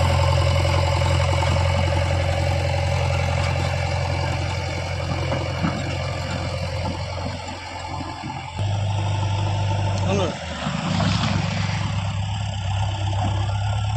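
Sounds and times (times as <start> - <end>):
diesel engine humming: 0.0 - 13.9.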